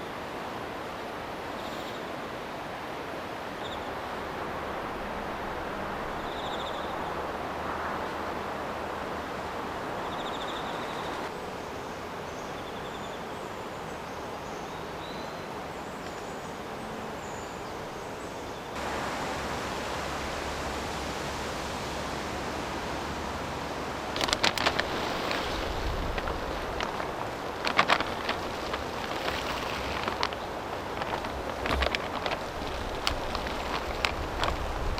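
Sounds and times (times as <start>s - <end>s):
rushing hiss: 18.8s - 34.9s.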